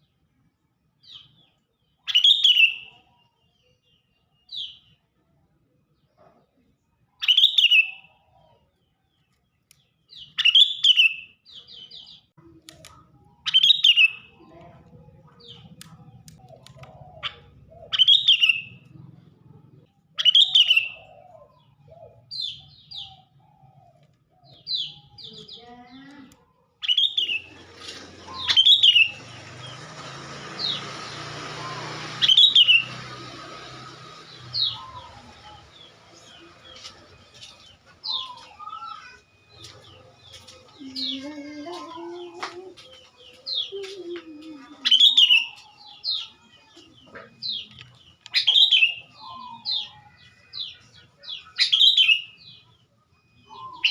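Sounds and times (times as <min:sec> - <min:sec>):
bulbul chirping: 0:15.3 - 0:23.4.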